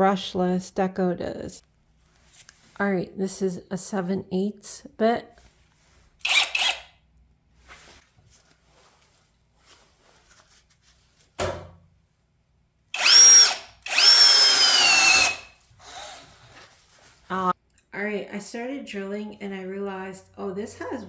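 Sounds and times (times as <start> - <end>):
cordless drill motor whine: 6.2 - 6.9, 13.0 - 16.3.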